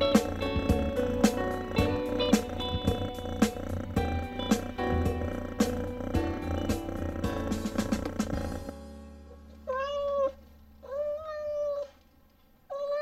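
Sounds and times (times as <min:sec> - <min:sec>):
background music: 0:00.0 - 0:10.4
cat meowing: 0:09.7 - 0:12.0, 0:12.7 - 0:13.0.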